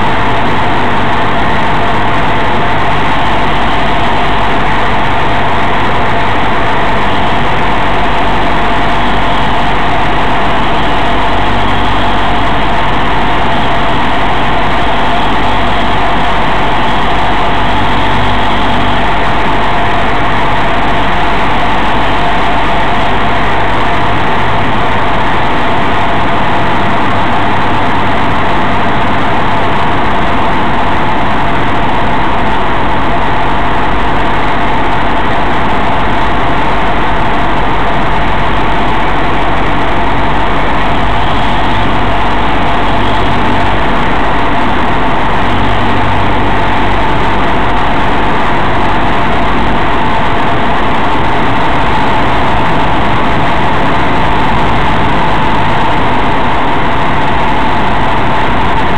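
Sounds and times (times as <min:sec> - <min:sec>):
aircraft engine and propeller: 0:00.0 - 0:58.9.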